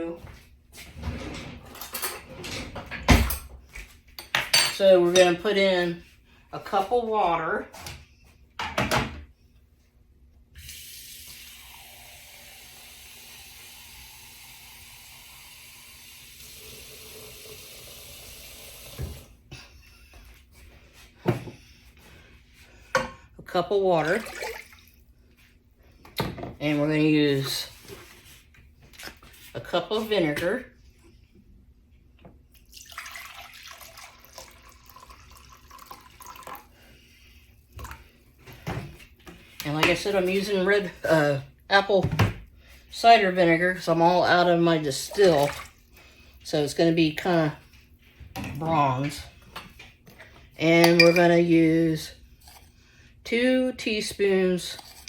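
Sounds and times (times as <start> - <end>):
liquid being poured: 24.0 - 25.0, 32.6 - 36.8.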